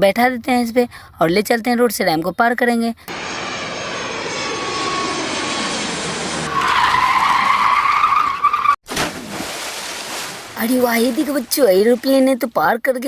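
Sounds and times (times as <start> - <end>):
tyres squealing: 6.5 - 8.8.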